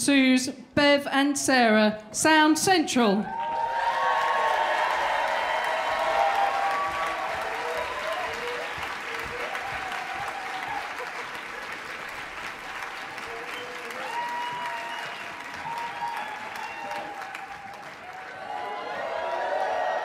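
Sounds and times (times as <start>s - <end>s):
people cheering: 3.2s - 20.0s
audience applauding: 3.3s - 20.0s.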